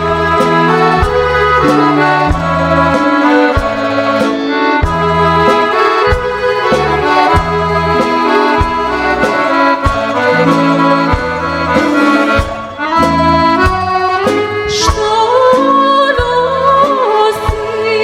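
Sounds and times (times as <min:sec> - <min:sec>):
accordion folk tune: 0:00.0 - 0:18.0
steady bass beat: 0:04.8 - 0:14.9.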